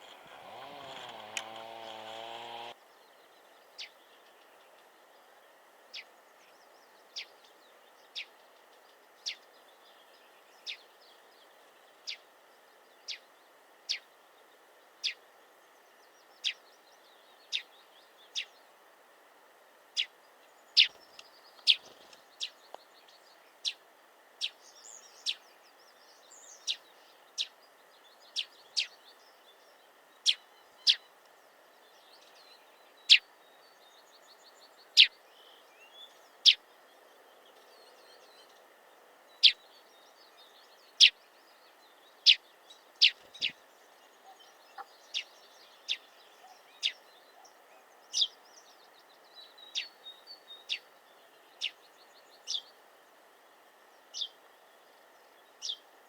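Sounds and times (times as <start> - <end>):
faint bird twittering: 24.4 - 52.8.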